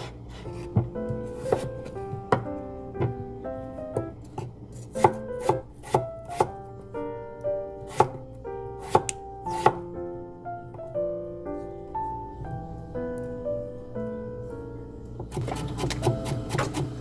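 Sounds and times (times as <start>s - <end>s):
knife chopping on cutting board: 0.0s - 1.7s, 4.4s - 6.6s, 7.9s - 8.2s, 8.8s - 9.8s, 15.2s - 17.0s
soft instrumental music: 0.3s - 17.0s.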